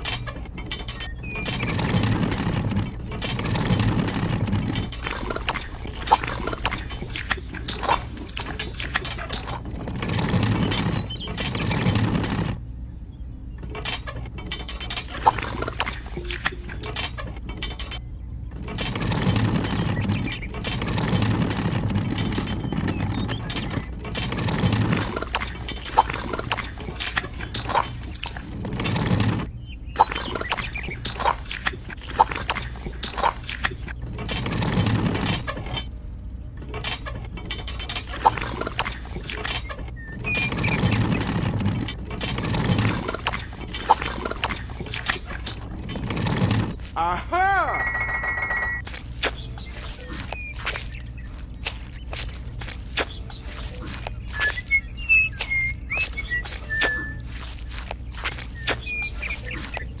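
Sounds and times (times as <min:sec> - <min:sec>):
clicks and rattles: 0:00.0 - 0:12.6, 0:13.6 - 0:47.0, 0:48.8 - 1:00.0
small geared motor whirring: 0:00.7 - 0:08.2, 0:09.1 - 0:12.7, 0:18.5 - 0:25.3, 0:28.2 - 0:29.6, 0:33.9 - 0:35.9, 0:40.0 - 0:43.6, 0:45.1 - 0:46.9, 0:48.8 - 1:00.0.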